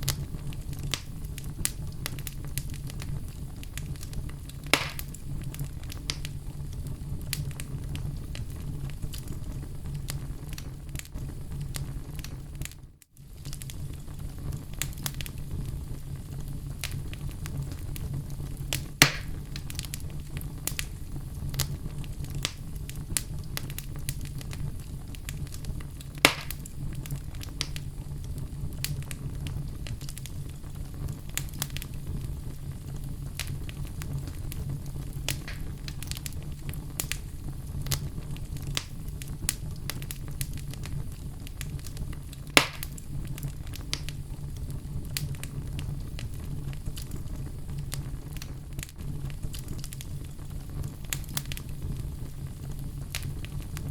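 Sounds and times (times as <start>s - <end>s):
sharp pops of burning logs: 0.0s - 3.1s, 3.7s - 6.4s, 14.8s - 15.8s, 16.8s - 27.9s, 28.8s - 32.4s, 33.2s - 44.2s, 45.0s - 51.8s, 52.8s - 53.9s
fire rumbling and crackling: 0.0s - 53.9s.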